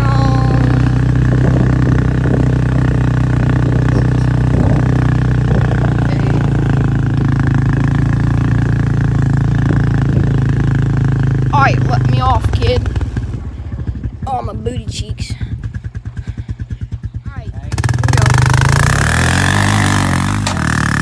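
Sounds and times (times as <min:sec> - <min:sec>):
quad bike engine running: 0:00.0 - 0:21.0.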